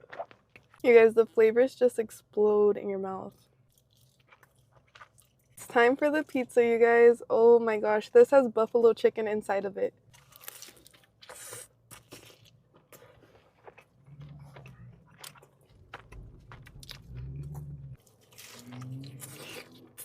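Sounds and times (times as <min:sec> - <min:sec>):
crunchy chewing: 0:03.3 - 0:05.6, 0:10.1 - 0:20.0.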